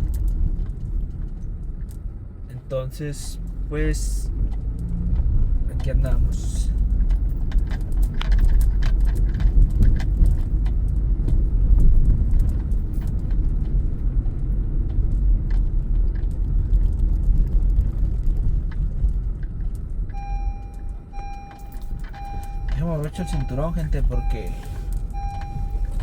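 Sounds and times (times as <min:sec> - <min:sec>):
car driving rumble: 0:00.0 - 0:26.0
seatbelt reminder beeping chime: 0:20.1 - 0:26.0.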